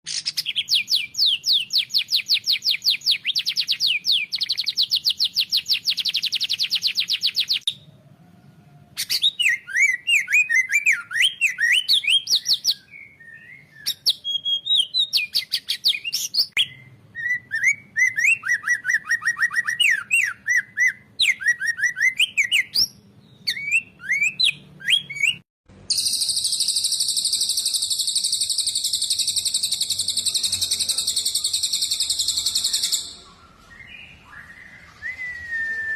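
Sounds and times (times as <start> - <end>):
songbird chirping and trilling: 0.1 - 35.9.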